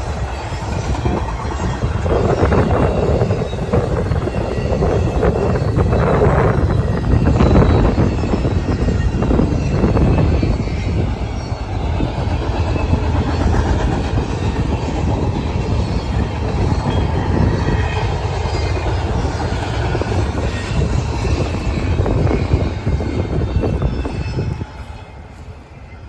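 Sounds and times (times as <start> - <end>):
faint high wheel squeal: 0.0 - 26.0
train rumbling: 0.0 - 26.0
wheels rattling on rail: 0.0 - 26.0.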